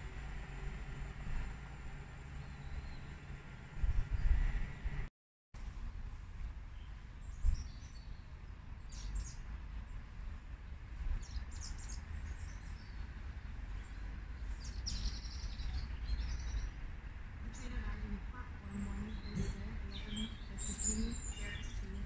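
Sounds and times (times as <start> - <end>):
low background rumble: 0.0 - 22.0
small birds chirping: 11.2 - 13.1, 13.7 - 16.8, 17.5 - 22.0.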